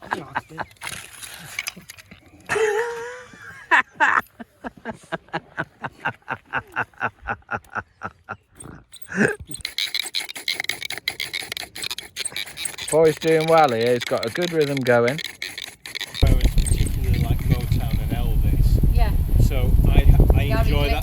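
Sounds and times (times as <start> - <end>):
wood rubbing against wood: 8.9 - 21.0
person speaking: 12.7 - 15.2, 20.2 - 21.0.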